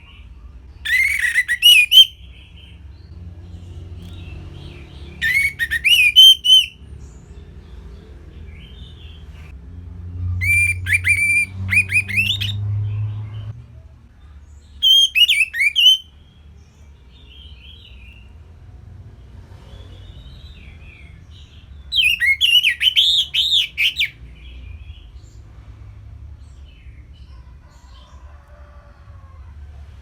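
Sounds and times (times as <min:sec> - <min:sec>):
faint bird calls: 0:00.8 - 0:02.2
thrush whistled song: 0:00.8 - 0:02.5, 0:05.2 - 0:06.9, 0:10.4 - 0:12.6, 0:14.8 - 0:16.2, 0:21.9 - 0:24.2.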